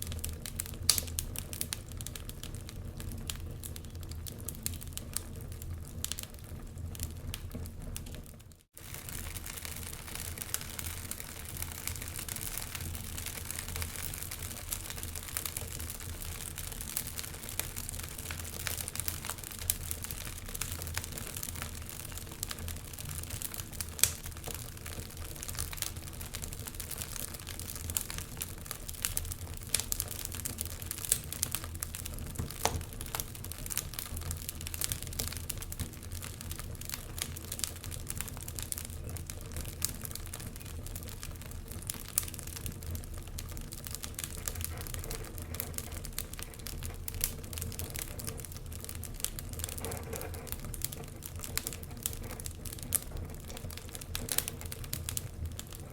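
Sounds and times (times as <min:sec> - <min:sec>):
fire low rumble: 0:00.0 - 0:55.9
wood fire crackling and popping: 0:00.0 - 0:55.9.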